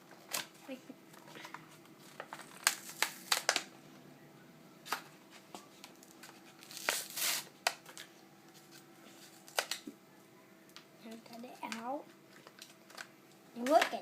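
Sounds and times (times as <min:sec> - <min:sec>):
packaging crinkling and snapping: 0:01.3 - 0:03.7, 0:05.8 - 0:08.1, 0:09.3 - 0:09.9, 0:11.6 - 0:14.0
packaging tearing rustle: 0:01.4 - 0:03.7, 0:05.8 - 0:08.1.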